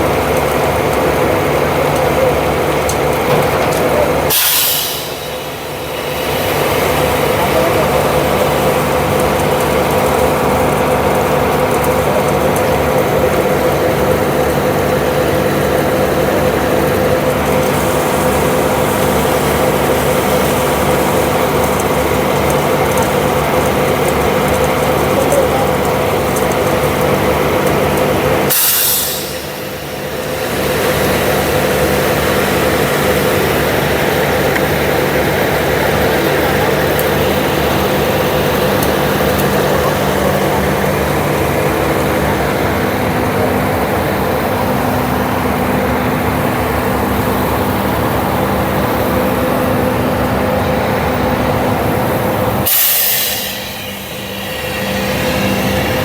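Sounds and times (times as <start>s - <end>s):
truck engine running: 0.0s - 56.0s
air hiss: 4.3s - 6.8s, 28.5s - 29.8s, 52.6s - 56.0s.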